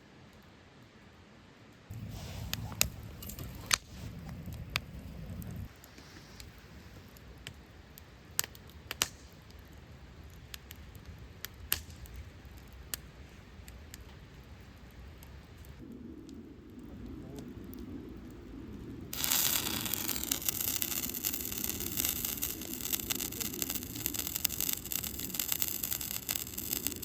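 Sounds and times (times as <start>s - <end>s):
campfire crackling: 0.0s - 27.0s
low rumble: 1.9s - 5.7s.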